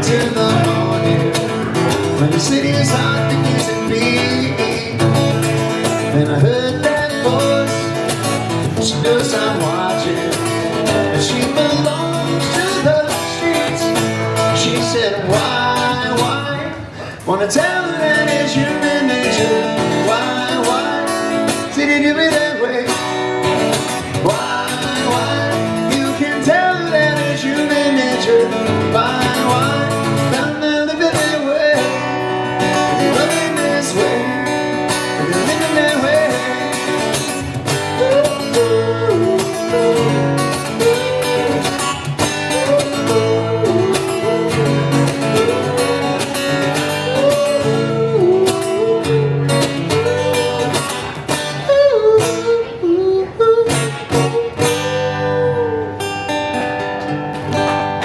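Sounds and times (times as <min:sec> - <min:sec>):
acoustic guitar chords: 0:00.0 - 0:58.0
person singing wordless melody: 0:24.0 - 0:56.2.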